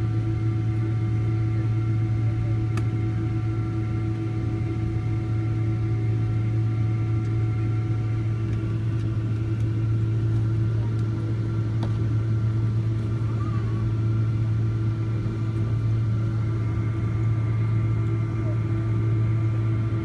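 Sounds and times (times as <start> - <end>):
aircraft cabin drone: 0.0 - 20.0.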